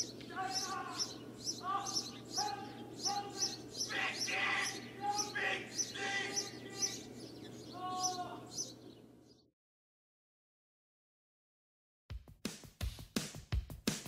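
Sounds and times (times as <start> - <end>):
low whistled bird calls: 0.0 - 9.5
songbirds chirping: 0.0 - 9.5.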